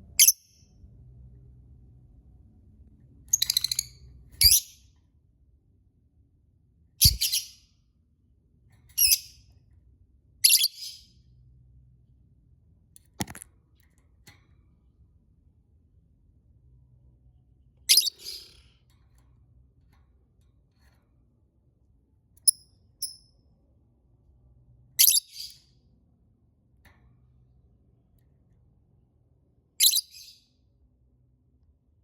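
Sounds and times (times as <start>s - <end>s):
bird chirping shrilly: 3.3s - 4.7s, 7.0s - 7.6s, 17.9s - 18.6s.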